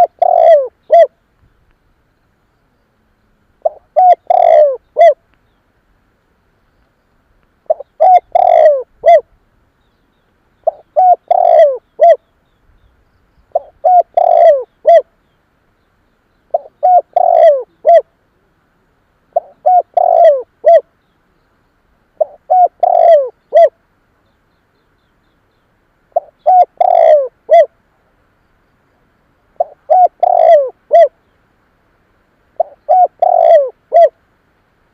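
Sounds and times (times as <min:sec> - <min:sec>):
dove cooing: 0:00.0 - 0:01.2, 0:03.6 - 0:05.2, 0:07.6 - 0:09.3, 0:10.6 - 0:12.2, 0:13.5 - 0:15.2, 0:16.5 - 0:18.5, 0:19.3 - 0:20.9, 0:22.2 - 0:23.8, 0:26.1 - 0:27.8, 0:29.5 - 0:31.2, 0:32.5 - 0:34.2.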